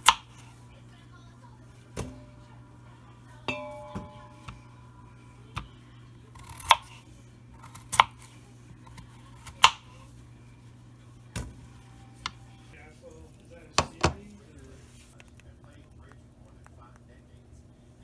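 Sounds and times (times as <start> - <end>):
steady low hum: 0.0 - 18.0
metal utensil clinking: 3.4 - 5.1.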